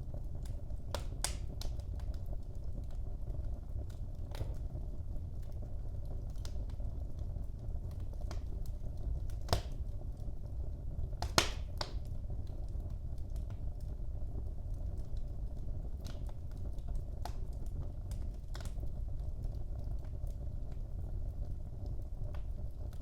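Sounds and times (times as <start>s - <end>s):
wood fire crackling: 0.0s - 23.0s
loud fire pops: 0.4s - 13.9s.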